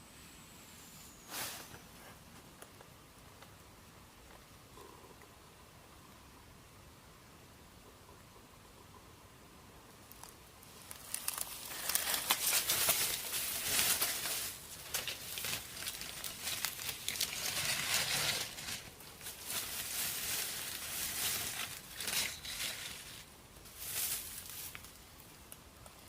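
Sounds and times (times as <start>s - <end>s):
dry material rustling and crinkling: 10.1s - 26.0s.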